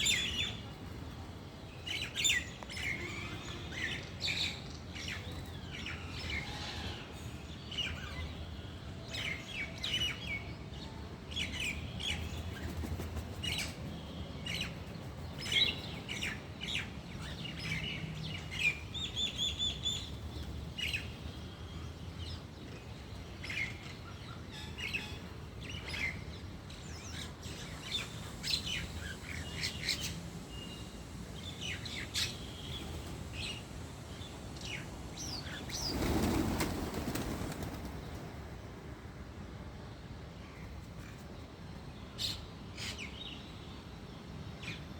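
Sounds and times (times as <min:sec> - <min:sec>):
small birds chirping: 0:11.4 - 0:38.4.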